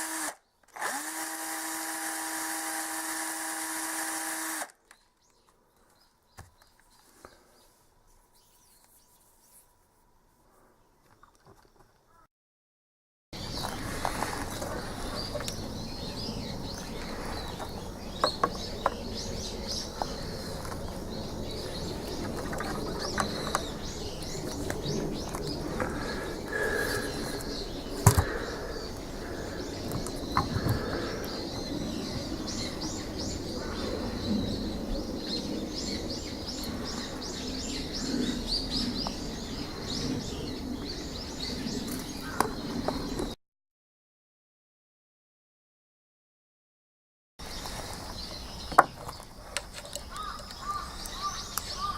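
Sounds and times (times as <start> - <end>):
small birds chirping: 4.8 - 9.7, 13.4 - 43.4, 47.4 - 51.9.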